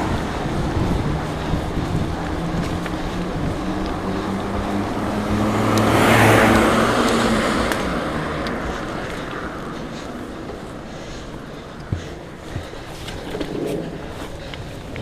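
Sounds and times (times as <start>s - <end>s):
car passing by: 0.0s - 10.9s.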